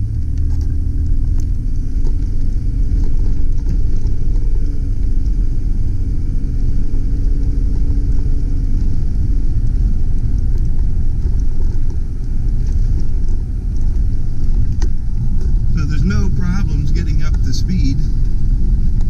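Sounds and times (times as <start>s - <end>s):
faint engine tone: 0.0s - 19.0s
pickup truck driving rumble: 0.0s - 19.0s.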